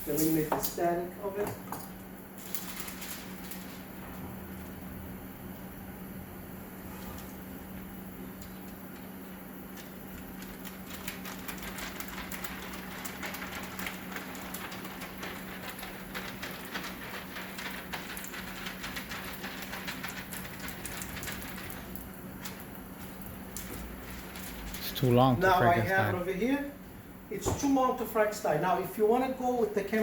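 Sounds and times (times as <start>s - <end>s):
plastic liner peeling crackle: 2.4s - 3.9s, 9.8s - 25.0s.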